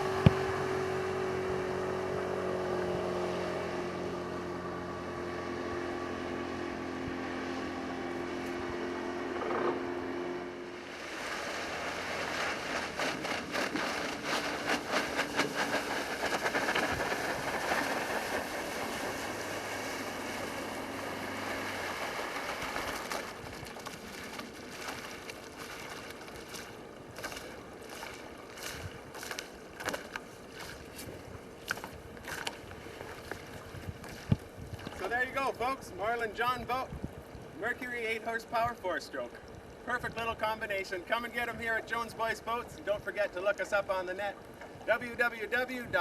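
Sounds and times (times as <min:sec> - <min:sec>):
faint outboard motor: 0:00.0 - 0:46.0
water rushing against boat hull: 0:00.0 - 0:46.0
water slapping and splashing: 0:00.0 - 0:46.0
wind on microphone: 0:10.9 - 0:20.3, 0:32.8 - 0:35.1, 0:36.8 - 0:37.6.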